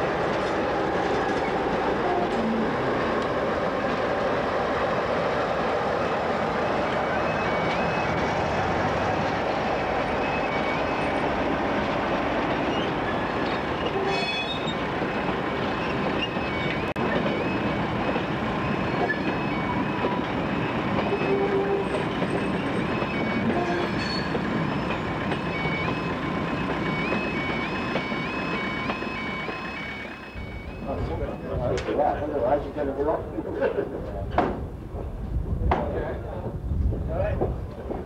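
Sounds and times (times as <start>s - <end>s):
train wheel-on-rail rush: 0.0s - 38.0s
high wheel squeaks: 9.7s - 11.5s, 12.4s - 31.7s
two-tone crossing alarm warbling: 25.4s - 31.7s.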